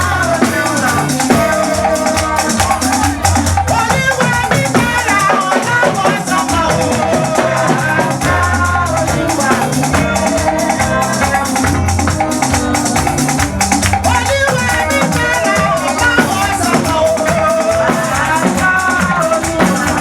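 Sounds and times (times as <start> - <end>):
church band music: 0.0 - 20.0
shaker rhythm: 0.0 - 20.0.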